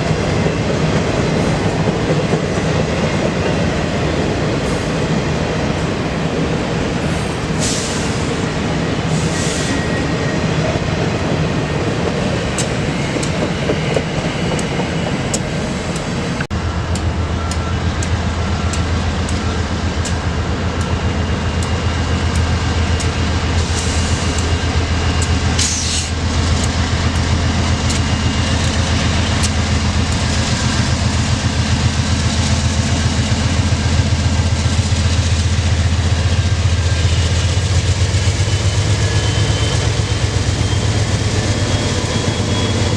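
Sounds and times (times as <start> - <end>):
freight train rumble: 0.0 - 42.9
train wheels clicking over rail joints: 11.7 - 42.9.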